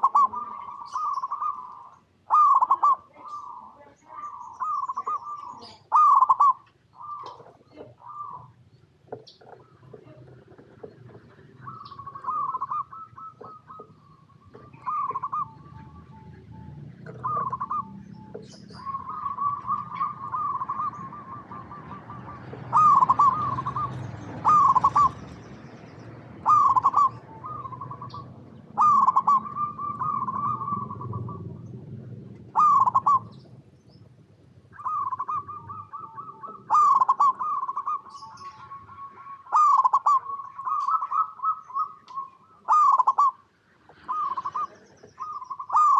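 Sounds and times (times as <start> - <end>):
doves cooing: 0.0 - 45.9.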